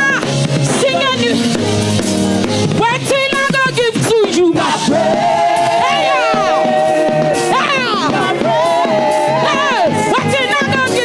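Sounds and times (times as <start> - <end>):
gospel band playing: 0.0 - 11.0
person singing: 4.6 - 10.9.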